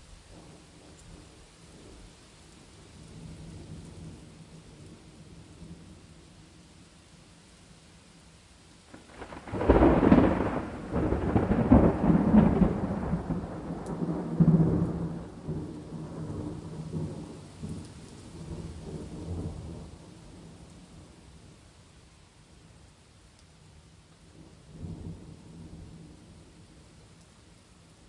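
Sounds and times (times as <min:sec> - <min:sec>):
faint rain hiss: 0:00.0 - 0:28.0
rolling thunder: 0:08.9 - 0:21.1.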